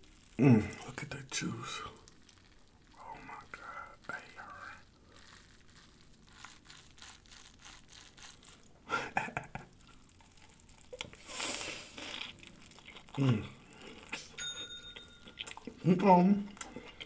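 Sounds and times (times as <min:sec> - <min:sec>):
crinkling rustle: 0:00.0 - 0:08.8, 0:09.4 - 0:14.4
biting and chewing: 0:03.6 - 0:08.8, 0:09.5 - 0:17.0
wet mouth clicks: 0:09.9 - 0:14.4, 0:16.5 - 0:17.0.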